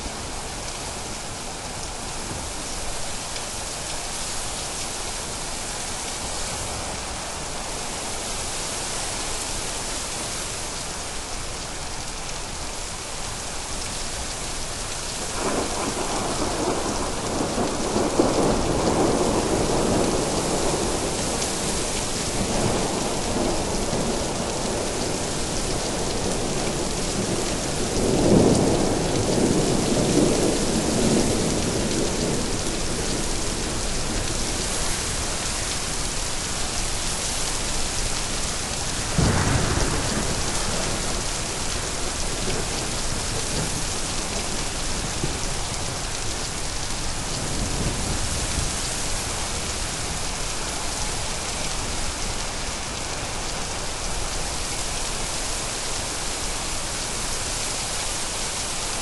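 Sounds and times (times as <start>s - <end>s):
heavy rain: 0.0s - 59.0s
rolling thunder: 39.0s - 45.8s.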